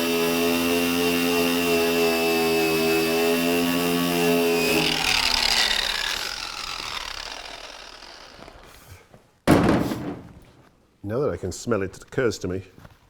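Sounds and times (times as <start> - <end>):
power tool motor winding down: 0.0 - 8.9.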